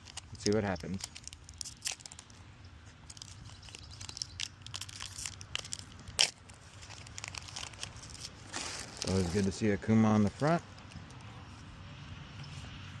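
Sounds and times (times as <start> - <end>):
foil pack tearing and crinkling: 0.0 - 2.4, 3.0 - 9.6.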